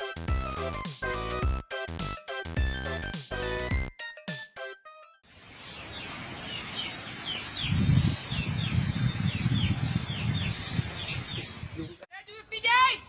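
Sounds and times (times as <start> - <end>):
bird chirping: 5.5 - 12.6.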